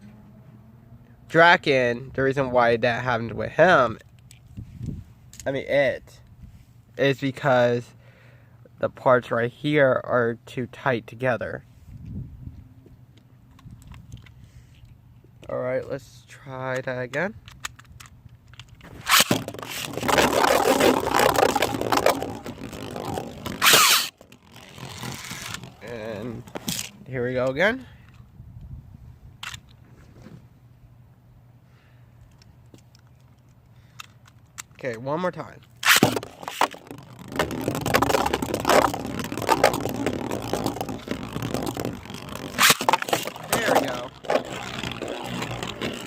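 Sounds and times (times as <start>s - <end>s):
plastic spinning top rattling: 18.8s - 27.0s, 35.8s - 46.0s
spinning top launch whirring zip: 18.8s - 27.0s, 35.8s - 46.0s.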